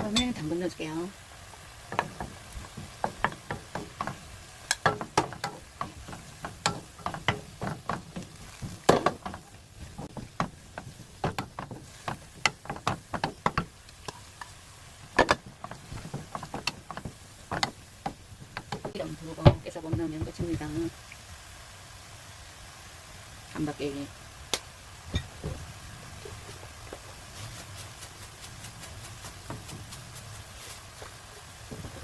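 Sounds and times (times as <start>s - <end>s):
utensil knocking against a pan: 1.9s - 13.8s, 15.2s - 20.8s.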